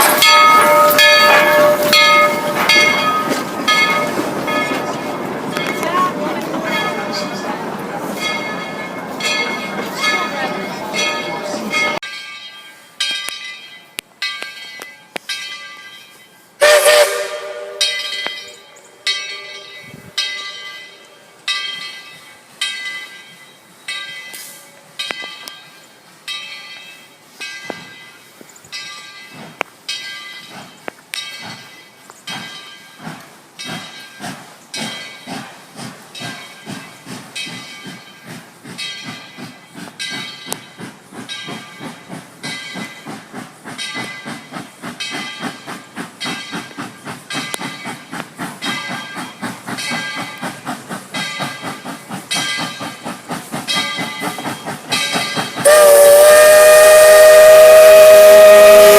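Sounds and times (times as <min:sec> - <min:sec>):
steam locomotive exhaust chuffs: 0:00.0 - 0:12.1, 0:14.4 - 0:58.9
locomotive bell ringing: 0:00.0 - 0:33.0, 0:36.2 - 0:58.9
steam whistle blast: 0:16.6 - 0:18.2, 0:55.6 - 0:58.9.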